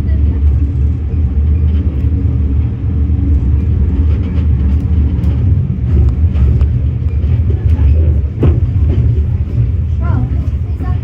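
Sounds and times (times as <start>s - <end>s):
vehicle rumbling: 0.0s - 11.0s
faint clicks and rattles: 3.2s - 11.0s.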